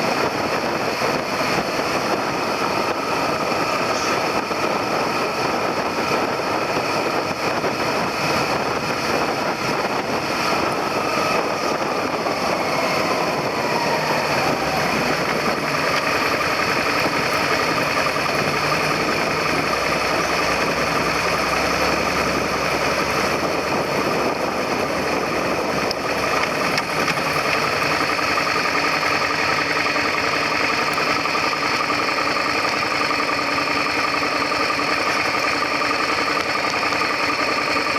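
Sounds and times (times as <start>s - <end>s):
motorcycle engine idling: 0.0s - 37.9s.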